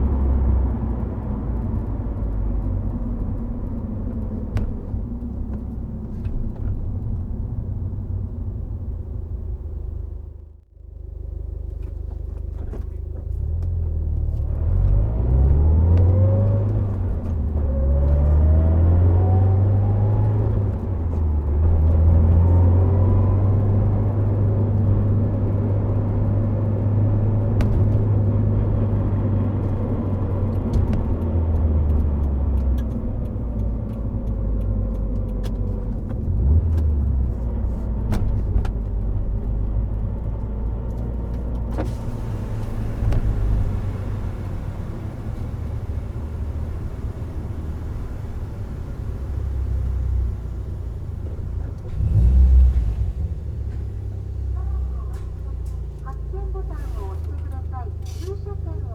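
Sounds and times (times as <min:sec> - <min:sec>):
road rumble: 0:00.0 - 0:58.9
turbocharged car engine accelerating: 0:13.2 - 0:58.9.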